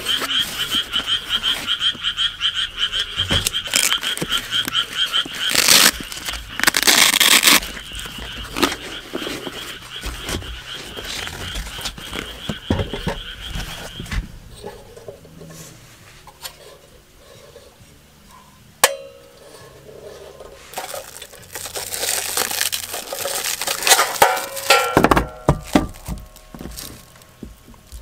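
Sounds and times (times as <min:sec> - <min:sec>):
rustling and crackling: 0:03.0 - 0:18.5, 0:19.4 - 0:28.0
hard objects clinking: 0:20.7 - 0:27.2.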